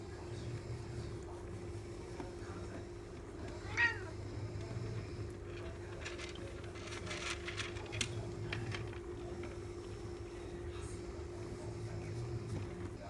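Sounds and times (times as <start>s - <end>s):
soft clicks and rustles: 5.4s - 10.2s.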